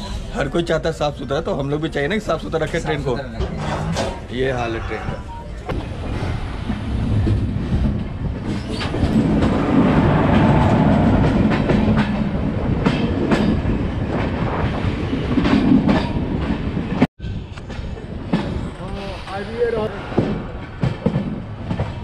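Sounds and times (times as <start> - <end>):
train rumbling at speed: 0.0 - 22.0
wheels clacking over rail joints: 6.6 - 14.4.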